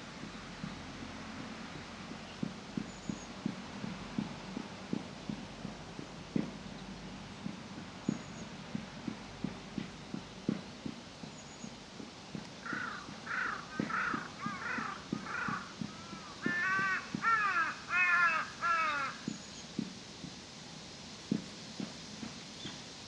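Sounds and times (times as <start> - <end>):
soft low knocks: 0.0 - 17.3
crow cawing: 12.6 - 19.2.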